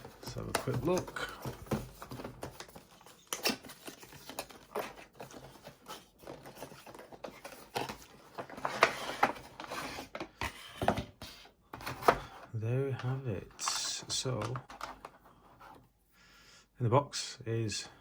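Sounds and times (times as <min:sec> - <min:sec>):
box packaging being opened: 0:00.0 - 0:12.4.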